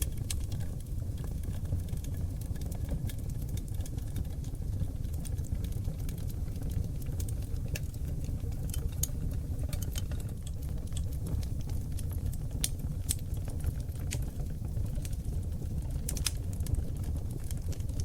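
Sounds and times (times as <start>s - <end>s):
fire crackling and popping: 0.0s - 18.0s
fire rumbling: 0.0s - 18.0s.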